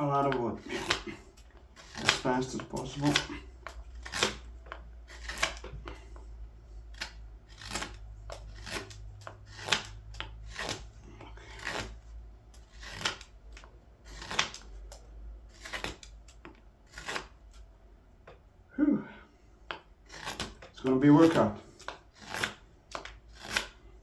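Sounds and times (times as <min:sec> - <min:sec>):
hook knife cutting green wood: 0:00.0 - 0:17.7, 0:19.6 - 0:24.0.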